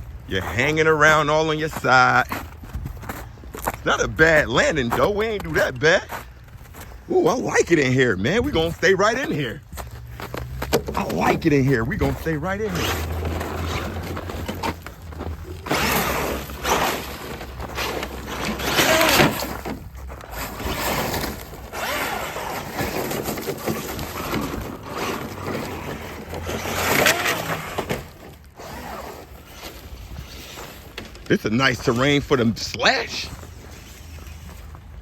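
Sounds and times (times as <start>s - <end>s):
toy truck motor and tyres surging: 11.0s - 29.6s.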